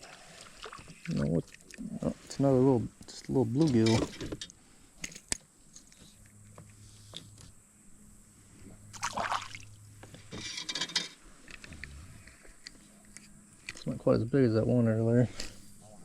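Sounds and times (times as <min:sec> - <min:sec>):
creek water sloshing and splashing: 0:00.0 - 0:02.3, 0:08.9 - 0:09.8.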